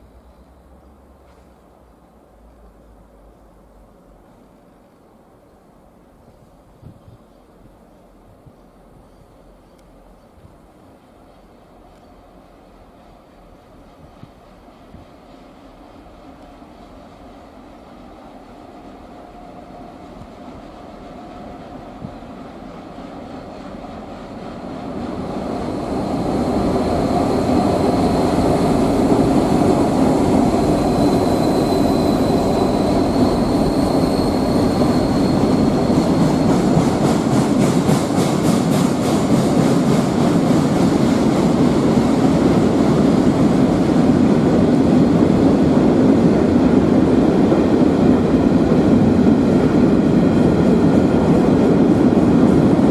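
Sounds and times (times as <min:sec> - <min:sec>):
train running past on rails: 0:00.0 - 0:52.9
thin high squeal: 0:30.7 - 0:36.7.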